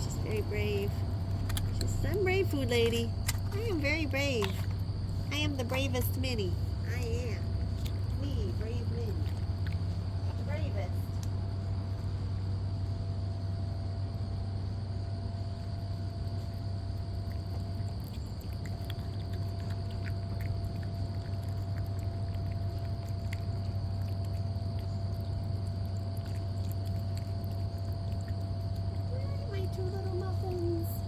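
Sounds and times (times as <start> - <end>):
low machine hum: 0.0 - 31.0.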